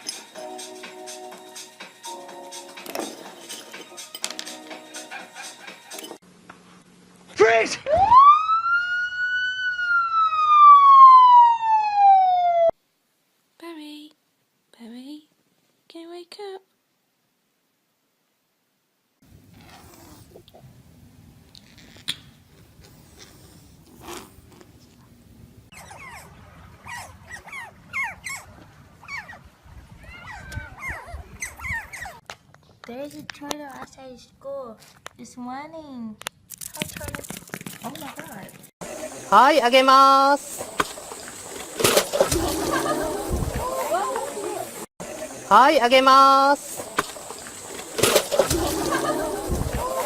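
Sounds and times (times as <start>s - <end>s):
dog whining: 25.7s - 32.2s.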